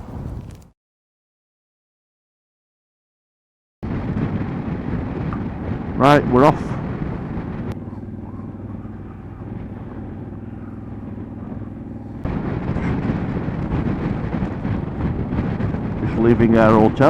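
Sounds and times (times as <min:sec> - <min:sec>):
motorcycle engine: 0:03.9 - 0:17.0.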